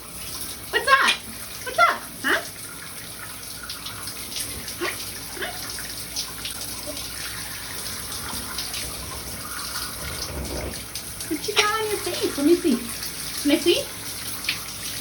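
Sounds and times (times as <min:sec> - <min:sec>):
shower spray running: 0:03.7 - 0:15.0.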